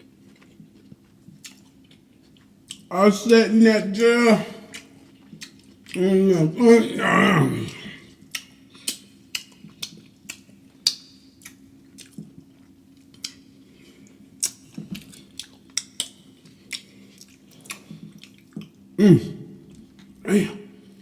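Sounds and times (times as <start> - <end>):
wet chewing and lip smacking: 0.0 - 2.9, 4.7 - 6.0, 8.1 - 18.9
short loud vocal sound: 6.0 - 8.0, 19.0 - 19.6, 20.3 - 20.8.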